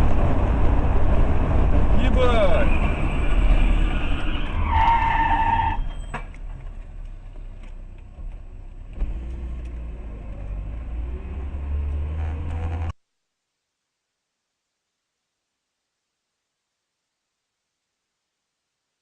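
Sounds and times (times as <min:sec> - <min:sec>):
road rumble inside car: 0:00.0 - 0:04.2, 0:05.4 - 0:13.0
car engine: 0:00.0 - 0:13.0.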